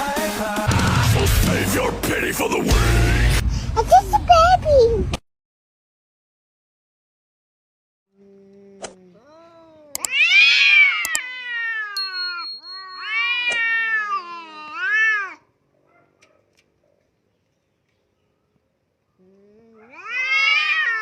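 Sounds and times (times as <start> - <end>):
cat meowing: 9.2 - 12.0, 13.0 - 15.5, 19.7 - 21.0
sharp clicks: 10.0 - 10.2, 11.0 - 11.2.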